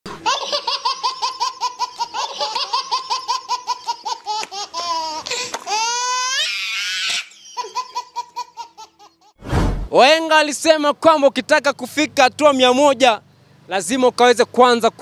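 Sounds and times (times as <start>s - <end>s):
high-pitched laughter: 0.1s - 9.4s.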